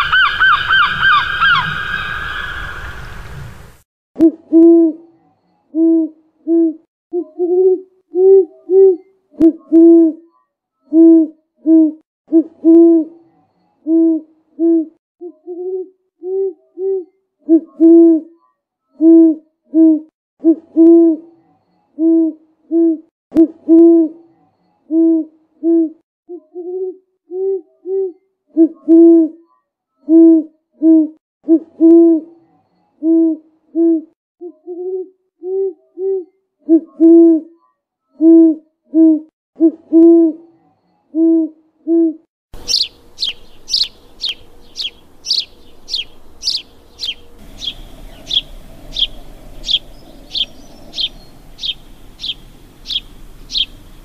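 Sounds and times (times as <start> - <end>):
low hooting bird calls: 0.0 - 3.2, 42.6 - 54.0
fainter higher bird notes: 42.6 - 53.9.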